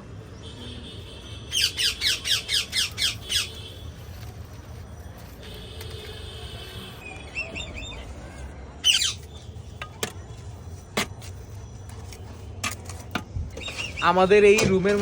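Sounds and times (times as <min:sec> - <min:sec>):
wavering bird squawk: 0:01.5 - 0:03.7, 0:08.8 - 0:09.2.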